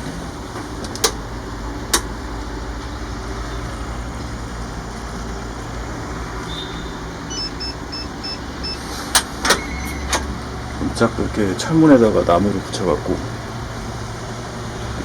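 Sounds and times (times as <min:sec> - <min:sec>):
engine-like mechanical hum: 0:00.0 - 0:15.0
faint short high beeps: 0:06.5 - 0:08.8.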